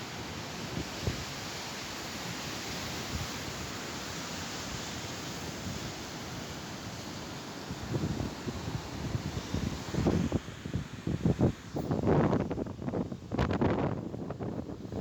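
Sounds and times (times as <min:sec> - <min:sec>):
wind buffeting microphone: 0:11.1 - 0:15.0.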